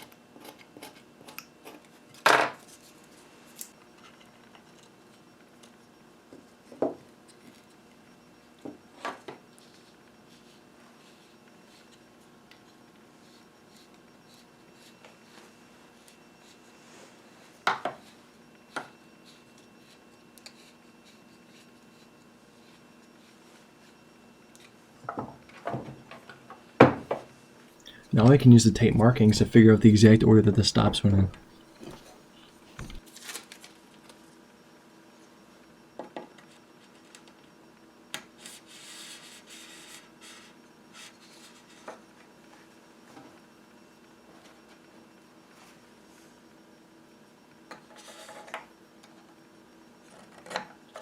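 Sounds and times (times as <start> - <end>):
quiet handling noise: 27.8 - 34.2.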